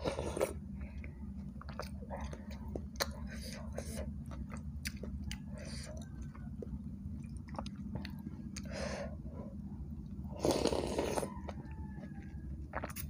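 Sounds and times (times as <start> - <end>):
steady low hum: 0.0 - 13.0
chewing with wet mouth clicks: 0.1 - 8.8, 10.0 - 13.0
loud slurp of noodles: 10.4 - 11.3.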